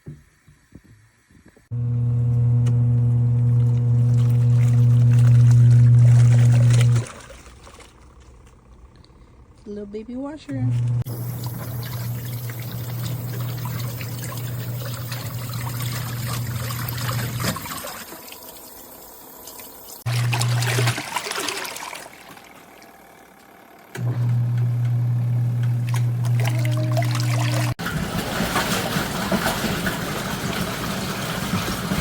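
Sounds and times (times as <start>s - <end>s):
washing machine motor humming: 1.7s - 32.0s
water trickling and splashing: 11.1s - 23.0s, 25.8s - 32.0s.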